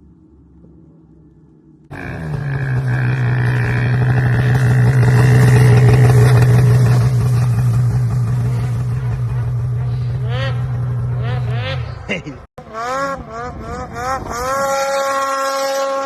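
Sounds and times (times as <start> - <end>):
snowmobile engine running: 1.9 - 16.0.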